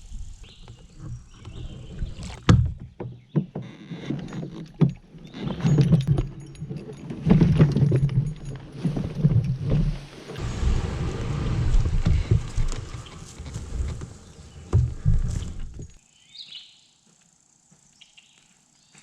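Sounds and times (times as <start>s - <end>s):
paddle strokes through water: 0.1s - 5.8s, 8.5s - 16.0s.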